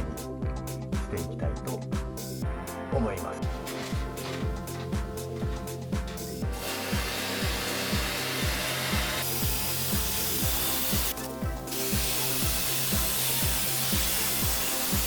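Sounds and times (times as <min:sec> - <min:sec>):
aerosol spray hissing: 0:03.5 - 0:15.0.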